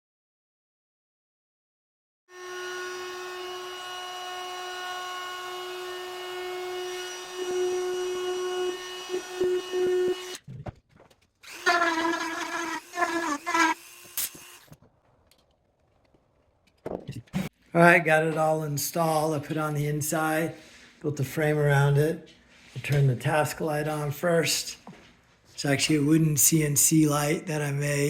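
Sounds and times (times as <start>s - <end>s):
small power tool motor: 11.4s - 14.8s.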